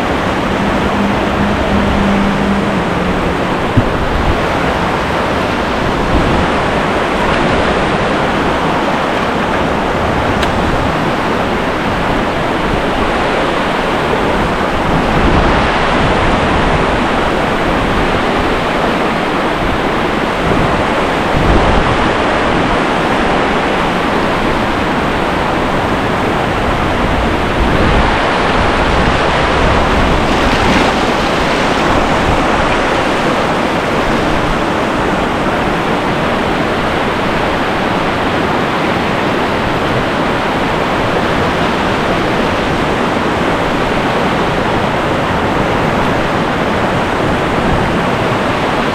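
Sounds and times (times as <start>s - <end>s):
low rumble: 0.0s - 6.8s
whitewater rapid rushing: 0.0s - 48.9s.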